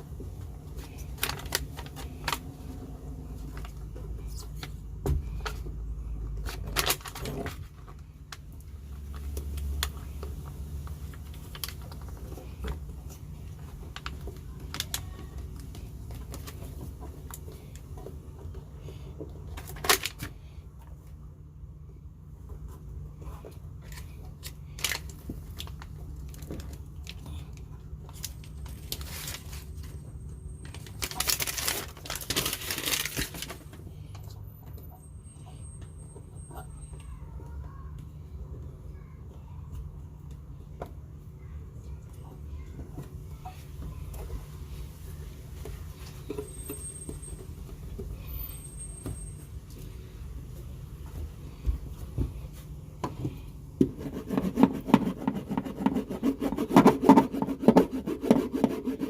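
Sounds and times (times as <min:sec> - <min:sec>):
rustling: 0:28.1 - 0:30.0.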